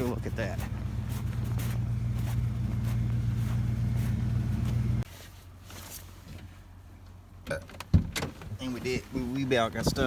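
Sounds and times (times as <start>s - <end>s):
pickup truck engine running: 0.0s - 5.0s.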